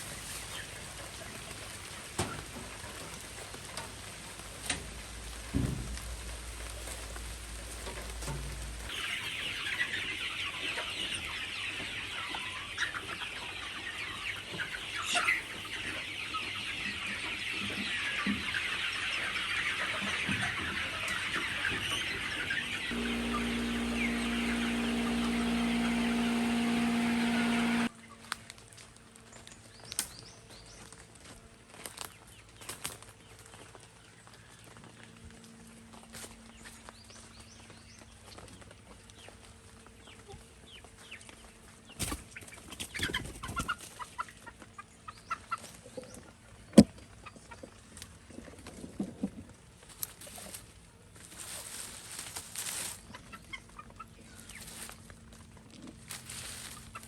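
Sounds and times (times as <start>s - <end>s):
chickens clucking and cheeping: 0.0s - 57.0s
steady hum: 22.7s - 27.9s.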